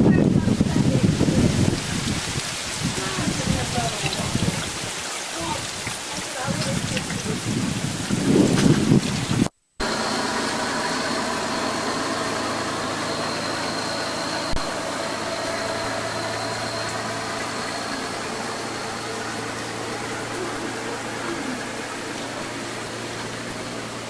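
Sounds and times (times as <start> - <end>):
motor humming: 9.8 - 24.0.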